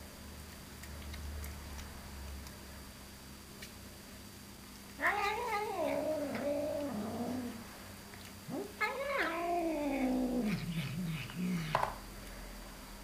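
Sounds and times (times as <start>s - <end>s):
cat yowling: 5.0s - 7.6s, 8.5s - 11.8s.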